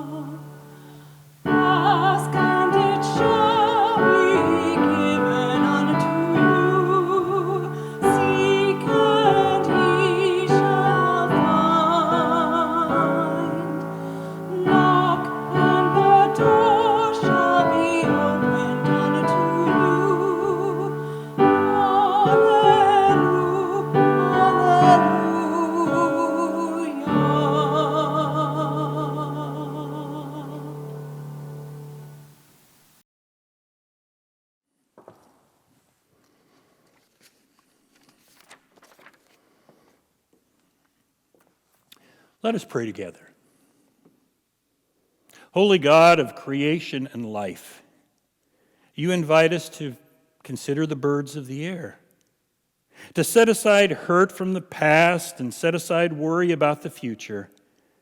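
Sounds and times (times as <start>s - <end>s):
person singing with vibrato: 0.0s - 32.3s
piano accompaniment: 0.0s - 32.6s.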